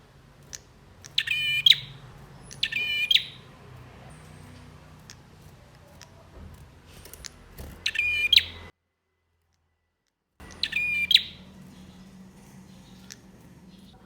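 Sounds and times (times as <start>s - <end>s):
faint low hum: 0.0s - 14.0s
thin high ticks: 0.3s - 8.0s, 10.4s - 14.0s
bird chattering trills: 0.4s - 6.3s, 7.0s - 8.7s, 10.4s - 14.0s.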